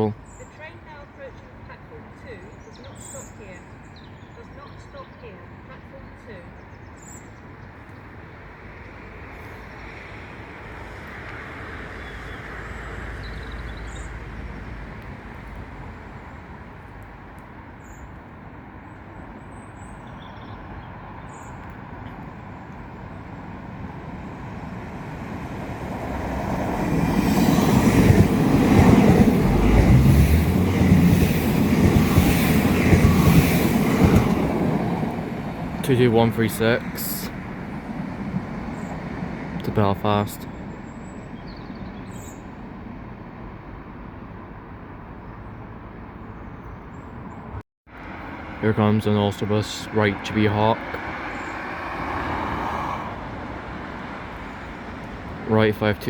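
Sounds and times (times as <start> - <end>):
distant train rumble: 0.0 - 46.2, 46.8 - 56.0
train passing at speed: 7.4 - 16.9, 20.6 - 46.1, 47.4 - 56.0.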